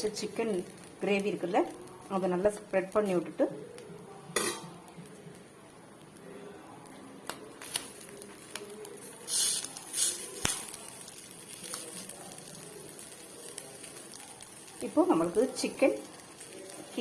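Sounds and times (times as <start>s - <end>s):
low sizzle on griddle: 0.0s - 17.0s.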